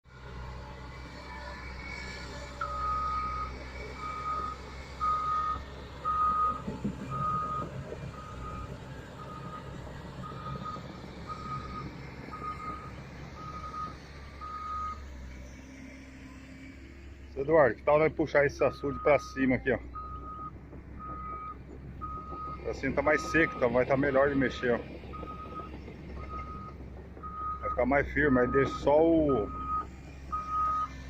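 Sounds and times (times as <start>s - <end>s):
diesel engine running: 0.0s - 31.0s
excavator alarm beeping: 2.5s - 15.0s, 18.5s - 31.0s.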